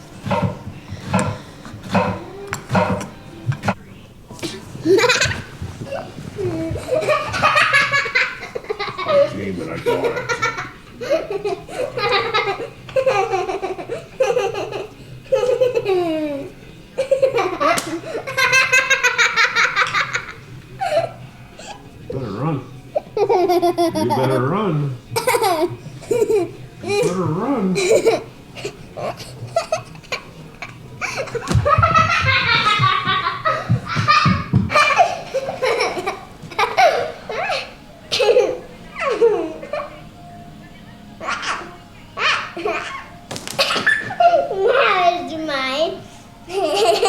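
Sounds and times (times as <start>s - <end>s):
young child laughing: 23.2s - 24.4s, 25.2s - 27.1s, 41.2s - 44.7s, 46.5s - 47.0s.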